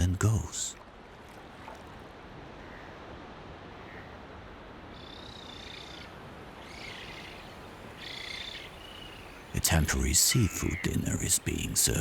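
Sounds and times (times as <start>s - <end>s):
birds calling: 6.6s - 12.0s
background hiss: 6.7s - 12.0s.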